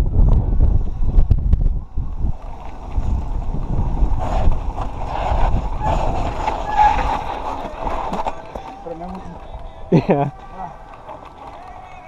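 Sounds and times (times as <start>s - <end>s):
bike tyres rumbling on dirt: 0.0s - 12.0s
wind buffeting microphone: 0.0s - 12.0s
bike buzzing rattle: 0.7s - 8.8s.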